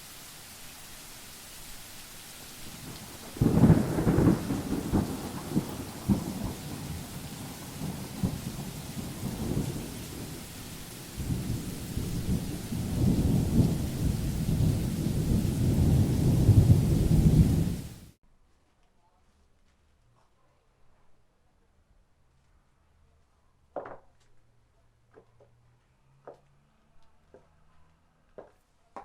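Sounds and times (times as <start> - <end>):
steady rain: 0.0 - 18.2
rolling thunder: 2.6 - 18.2.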